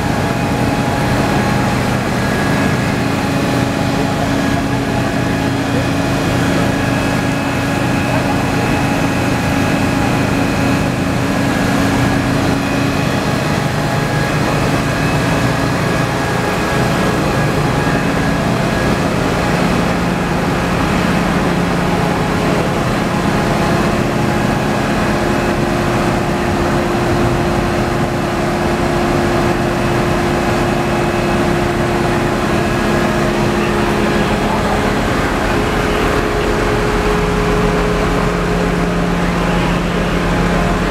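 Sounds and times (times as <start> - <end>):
motor running loudly: 0.0 - 40.9.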